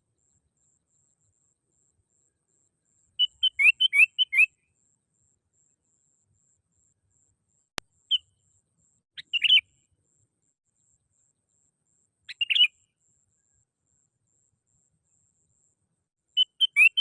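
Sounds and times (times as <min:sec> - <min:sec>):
bulbul calling: 0:03.2 - 0:04.6, 0:09.2 - 0:09.7, 0:12.3 - 0:12.9, 0:16.4 - 0:17.0.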